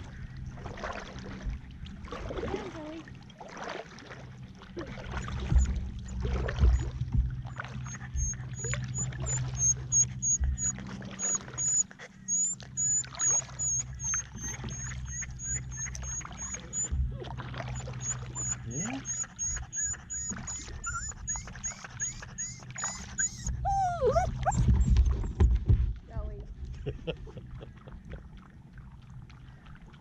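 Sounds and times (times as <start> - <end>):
paddle splashing in water: 0.0 - 30.0
dull knocks against hull: 5.2 - 9.4, 24.3 - 26.8.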